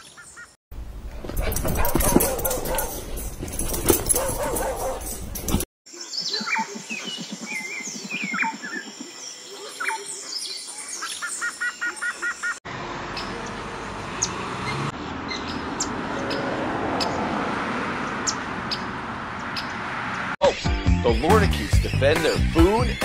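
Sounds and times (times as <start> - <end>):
birds chirping and calling: 0.0 - 0.6, 1.3 - 12.6, 13.2 - 17.3, 17.9 - 23.0
steady outdoor rush: 0.8 - 11.0, 12.6 - 20.5.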